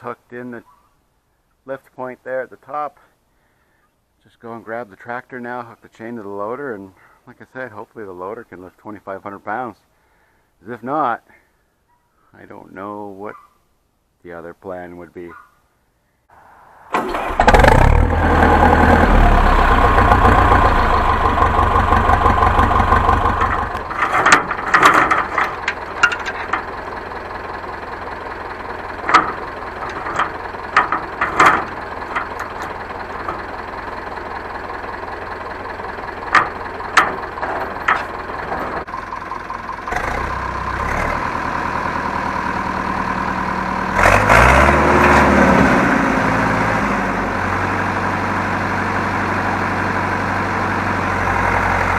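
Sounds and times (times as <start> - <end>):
tractor diesel engine idling: 16.9 - 51.9
sharp engine knocks: 19.1 - 38.9.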